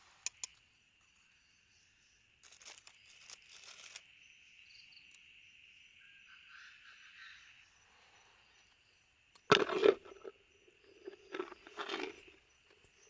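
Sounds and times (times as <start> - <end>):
crickets trilling: 0.0 - 13.0
crackling rustle: 2.4 - 4.1.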